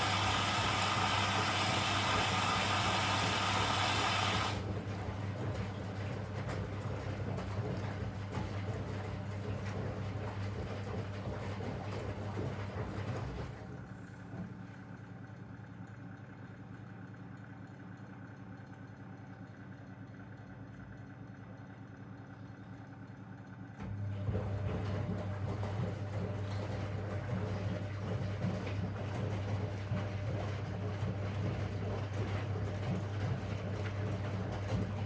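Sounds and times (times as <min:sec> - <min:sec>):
washing machine drum tumbling: 0:23.9 - 0:35.0.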